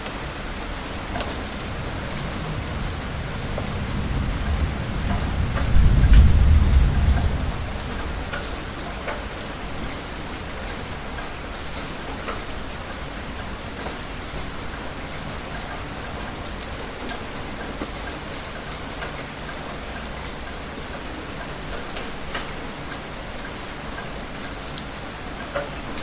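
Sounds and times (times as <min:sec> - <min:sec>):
heavy rain falling: 0:00.0 - 0:26.0
sharp raindrops: 0:00.0 - 0:26.0
low thunder rumble: 0:00.9 - 0:10.0.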